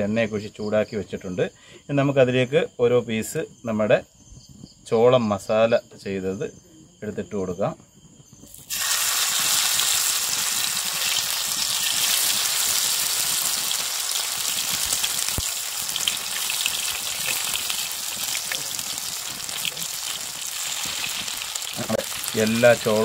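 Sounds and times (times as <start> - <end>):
corn frying in hot oil: 8.3 - 23.0.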